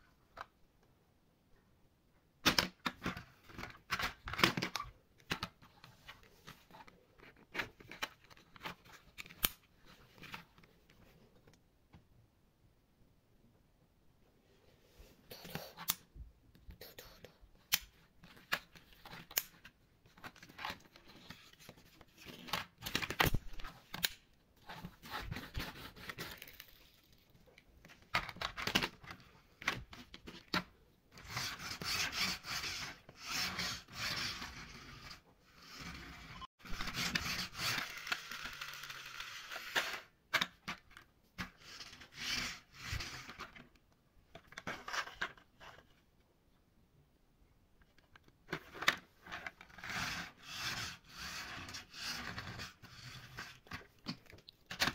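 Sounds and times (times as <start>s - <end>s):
toy wheels rolling on table: 36.8s - 40.1s.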